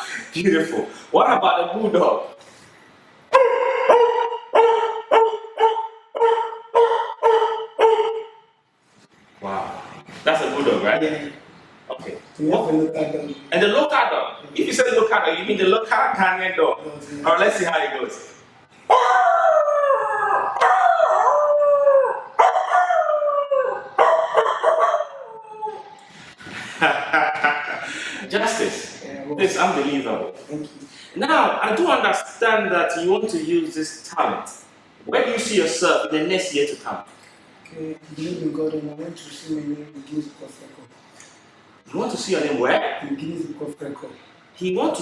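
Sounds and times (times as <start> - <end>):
man imitating dog barks: 3.3 - 8.2, 18.9 - 19.6
man imitating dog howling: 18.9 - 26.0.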